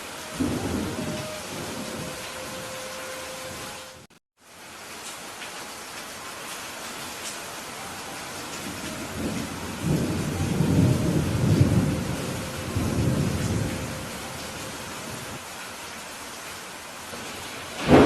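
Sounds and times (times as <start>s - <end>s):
rolling thunder rumble: 0.0s - 4.1s, 8.4s - 15.4s, 17.2s - 18.0s
steady rain hiss: 0.0s - 18.0s.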